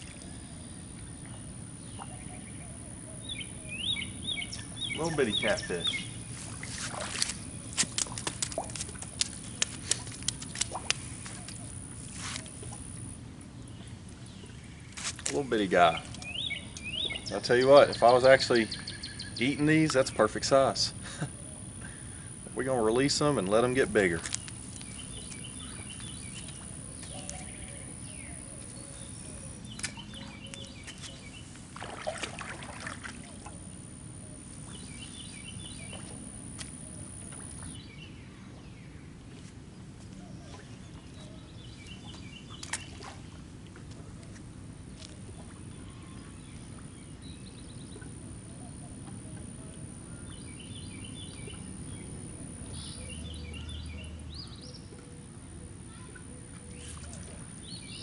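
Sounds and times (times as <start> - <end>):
songbird chirping: 0.0 - 12.8, 13.6 - 44.3, 45.3 - 58.0
rustling: 6.3 - 12.6
water splash: 6.4 - 13.0, 31.5 - 33.7.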